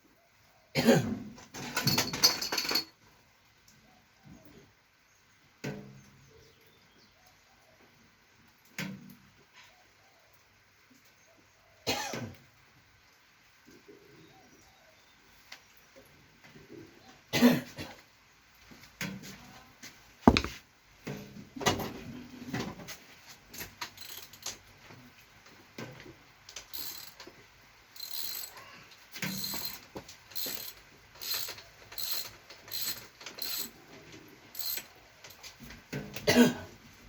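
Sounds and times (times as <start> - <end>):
sharp mechanical knock: 20.3 - 20.6.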